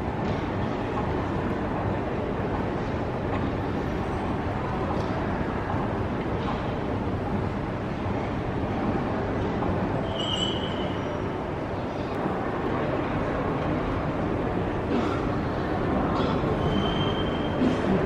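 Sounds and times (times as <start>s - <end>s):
short high squeal: 10.0s - 11.3s, 16.6s - 17.6s.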